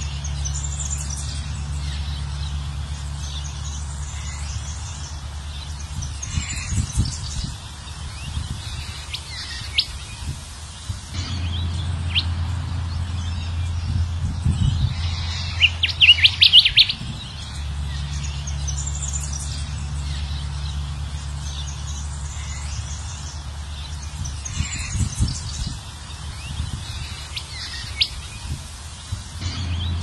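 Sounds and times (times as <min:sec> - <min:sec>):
low steady hum: 0:00.0 - 0:30.0
bird calling sharp notes: 0:14.5 - 0:18.7.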